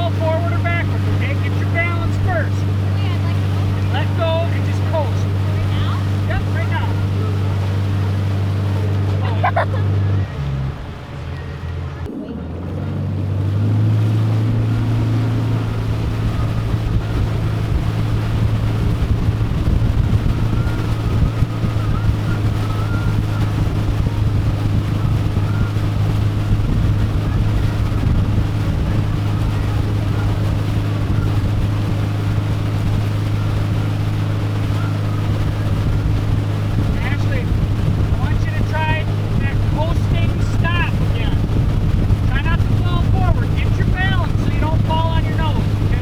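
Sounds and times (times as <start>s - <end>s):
motorboat engine droning: 0.0s - 46.0s
wind buffeting microphone: 0.0s - 46.0s.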